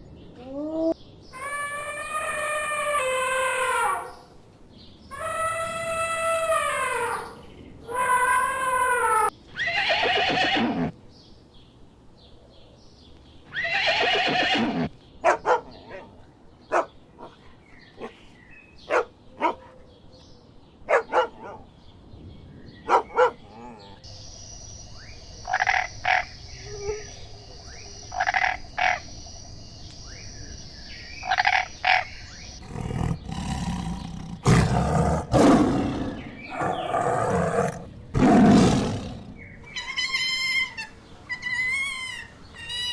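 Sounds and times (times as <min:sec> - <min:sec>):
pitched animal calls: 0:25.4 - 0:29.2, 0:31.1 - 0:42.9
loud deep roars: 0:32.6 - 0:39.4.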